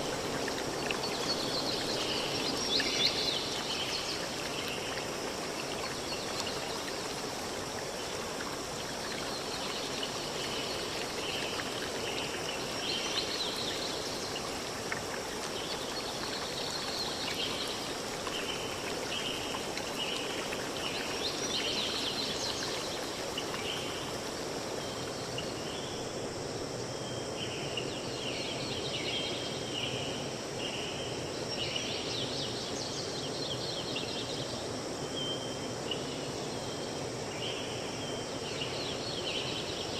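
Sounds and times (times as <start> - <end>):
stream flowing: 0.0 - 26.4.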